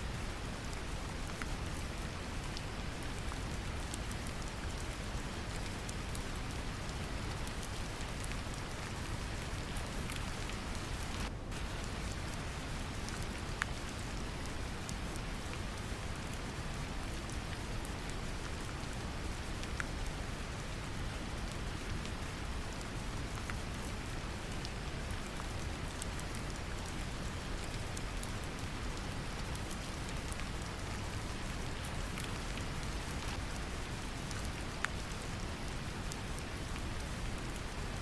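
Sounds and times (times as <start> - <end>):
gentle rain patter: 0.0 - 38.0
low hissing brown noise: 4.5 - 19.5.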